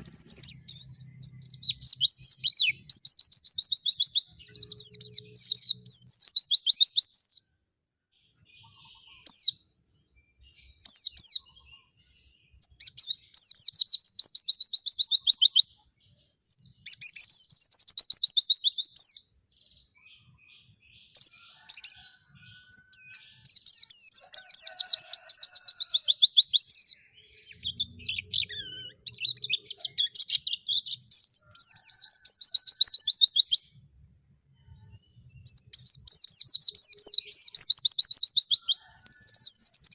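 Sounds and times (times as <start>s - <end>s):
soft bird chattering: 0.0s - 6.8s, 20.0s - 33.6s
bird singing fast trills: 0.0s - 7.6s, 8.2s - 39.9s.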